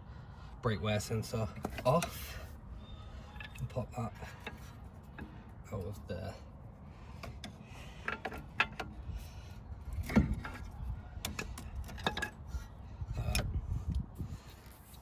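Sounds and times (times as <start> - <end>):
clicks and knocks of metal tools: 7.2 - 9.0, 10.0 - 12.6.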